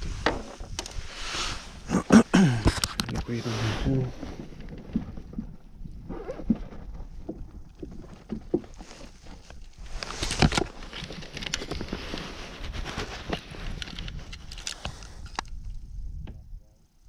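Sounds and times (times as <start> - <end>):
knocks and handling on kayak: 0.0 - 1.1, 4.1 - 13.4.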